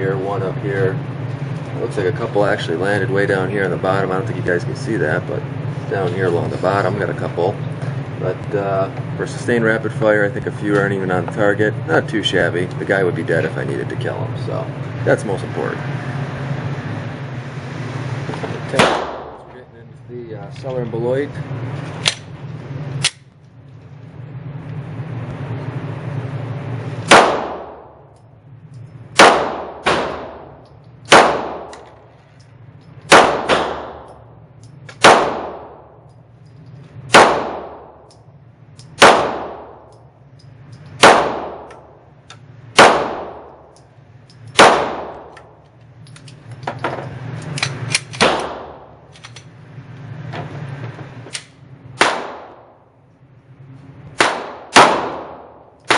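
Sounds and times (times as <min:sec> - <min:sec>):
steady low hum: 0:00.0 - 0:55.9
pistol shots echoing indoors: 0:27.0 - 0:28.0, 0:29.1 - 0:32.0, 0:33.1 - 0:34.2, 0:34.9 - 0:36.0, 0:37.1 - 0:38.2, 0:38.8 - 0:40.0, 0:41.0 - 0:42.0, 0:42.7 - 0:43.8, 0:44.5 - 0:45.6, 0:47.8 - 0:49.0, 0:52.0 - 0:52.8, 0:54.2 - 0:55.9.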